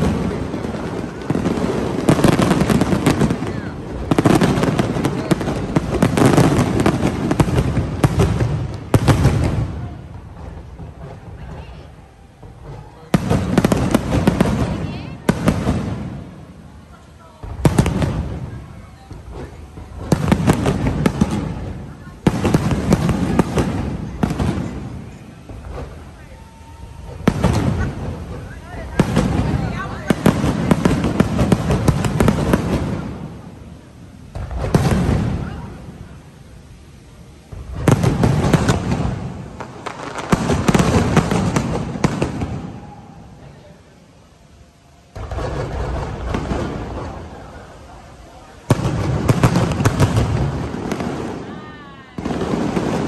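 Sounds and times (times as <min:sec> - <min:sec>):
fireworks explosions and crackling: 0:00.0 - 0:53.0.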